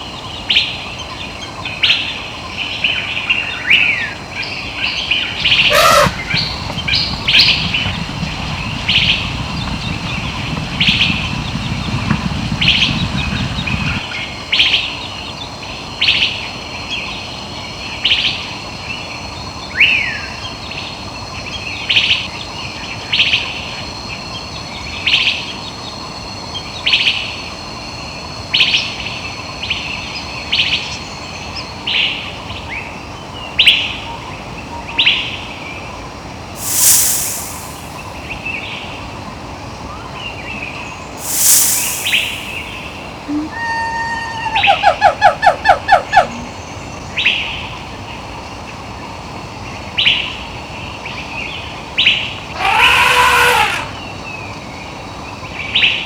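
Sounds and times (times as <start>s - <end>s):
low rumble: 5.4s - 14.1s
bird repeating short high call: 5.5s - 6.6s, 36.6s - 38.1s, 41.2s - 46.4s, 52.5s - 54.1s
falling whistle: 5.6s - 6.6s, 36.6s - 38.2s, 41.2s - 45.0s, 52.6s - 54.1s.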